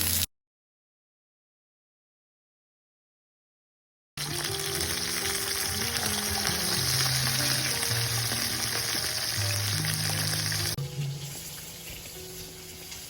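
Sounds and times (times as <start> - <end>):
background music: 4.2 - 13.0.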